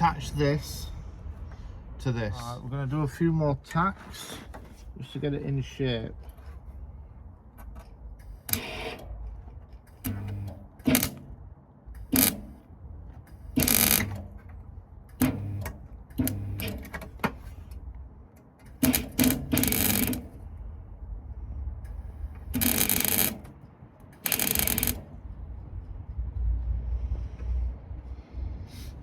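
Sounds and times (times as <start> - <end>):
crackling welding arc bursts: 12.1 - 12.5, 13.4 - 14.1, 18.8 - 20.3, 22.5 - 23.4, 24.2 - 25.1.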